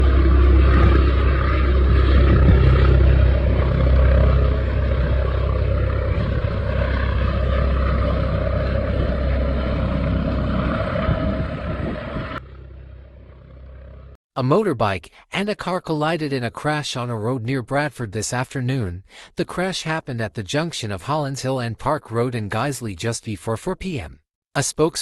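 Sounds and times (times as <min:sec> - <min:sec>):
helicopter rotor noise: 0:00.0 - 0:14.2.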